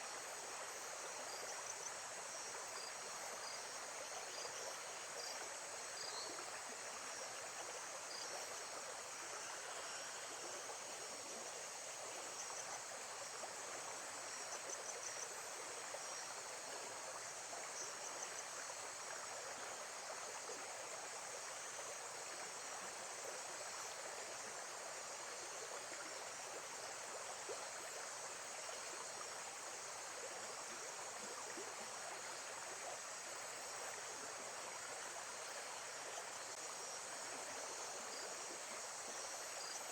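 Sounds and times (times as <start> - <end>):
high insect chorus: 0.0 - 39.9.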